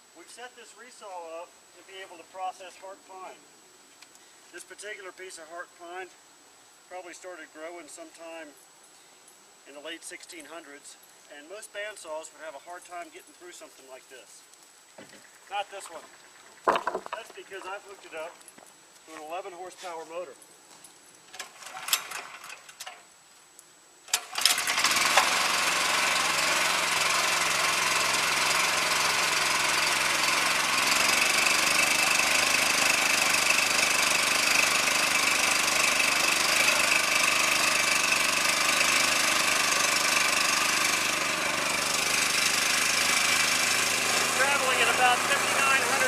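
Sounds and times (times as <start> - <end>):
light knocks: 16.7 - 17.2
bandsaw running with high whine: 24.2 - 46.0.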